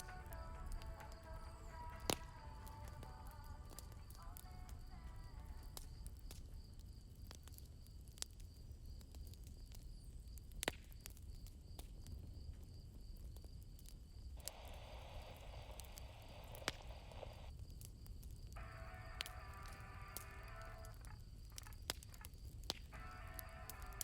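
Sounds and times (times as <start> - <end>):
crickets chirping: 0.0 - 10.4, 12.0 - 24.0
campfire crackling: 0.0 - 24.0
soft hiss: 14.3 - 21.5.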